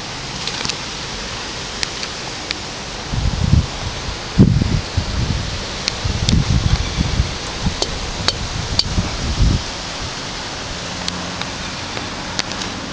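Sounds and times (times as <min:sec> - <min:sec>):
steady hiss: 0:00.0 - 0:12.9
wind on microphone: 0:00.0 - 0:12.9
sharp clicks: 0:07.8 - 0:09.0.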